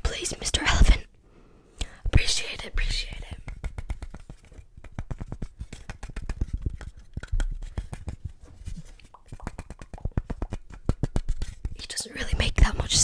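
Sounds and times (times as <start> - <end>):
fingertips tapping and clicking: 3.1 - 11.9.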